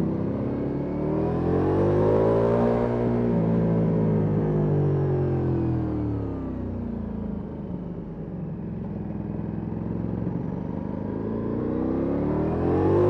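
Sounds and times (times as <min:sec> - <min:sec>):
motorcycle engine revving: 0:09.6 - 0:13.0.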